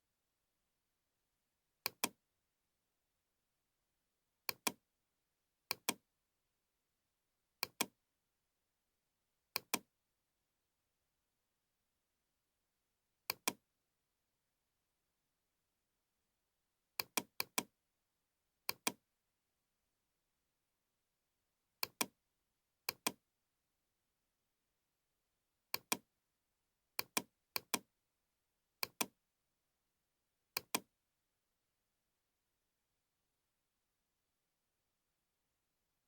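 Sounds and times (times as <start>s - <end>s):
computer mouse double-clicking: 1.9s - 2.2s, 30.6s - 30.8s.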